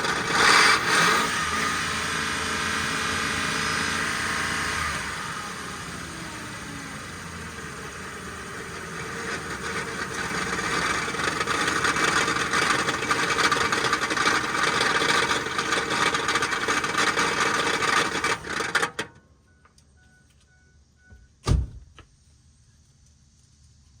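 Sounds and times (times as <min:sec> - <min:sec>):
harsh metallic grinding: 0:00.0 - 0:03.6, 0:08.4 - 0:19.0
engine running: 0:00.0 - 0:21.3.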